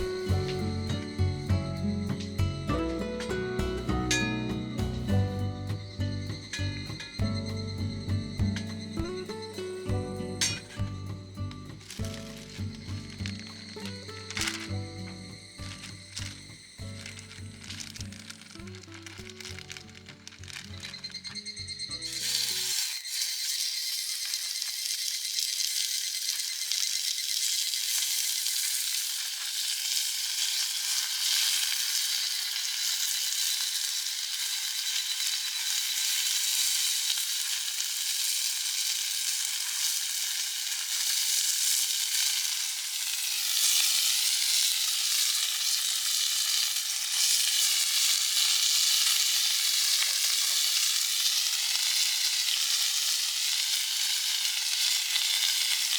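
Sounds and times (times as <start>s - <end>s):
steak sizzling in a pan: 0.0s - 55.9s.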